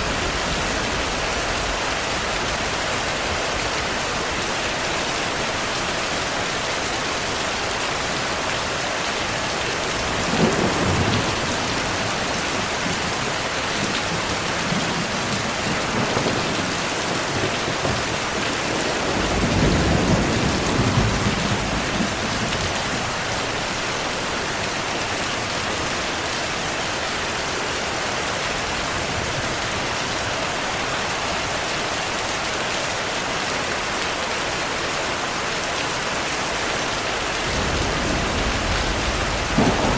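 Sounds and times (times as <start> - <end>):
heavy rain: 0.0 - 39.9
thunder rumbling: 10.0 - 23.7, 37.3 - 39.9.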